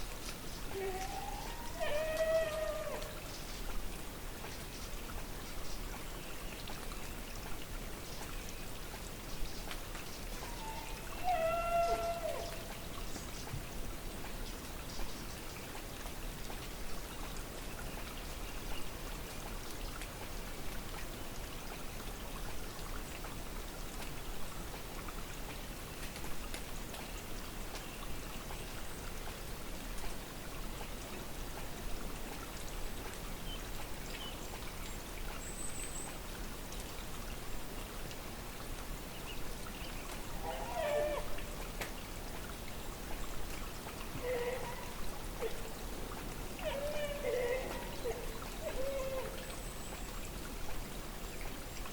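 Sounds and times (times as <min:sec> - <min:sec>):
distant animal call: 0:10.4 - 0:12.7, 0:44.2 - 0:45.7.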